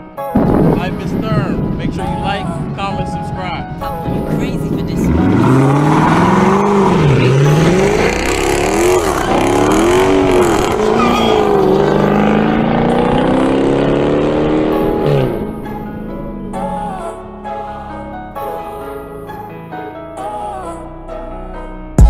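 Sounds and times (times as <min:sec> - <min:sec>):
car engine revving: 0:01.0 - 0:17.0.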